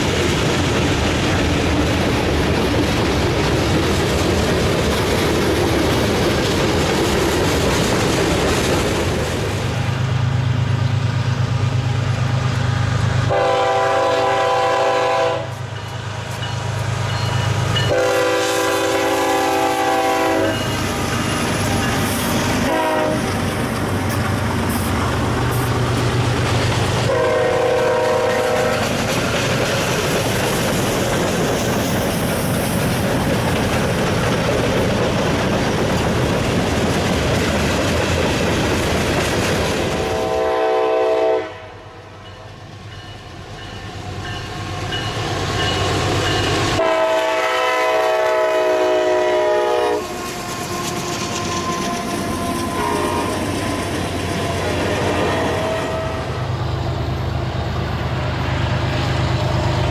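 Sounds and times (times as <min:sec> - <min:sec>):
diesel locomotives rumbling: 0:00.0 - 0:59.9
train wheels on rails: 0:00.0 - 0:59.9
train horn: 0:13.2 - 0:15.8, 0:17.8 - 0:23.4, 0:27.0 - 0:29.0, 0:40.0 - 0:42.4, 0:46.7 - 0:56.4.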